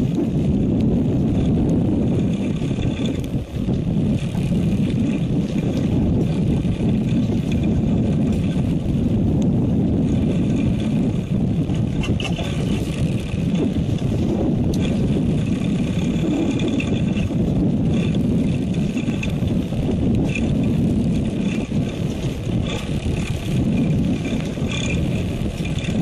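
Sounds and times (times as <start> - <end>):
boat engine rumbling: 0.0 - 26.0.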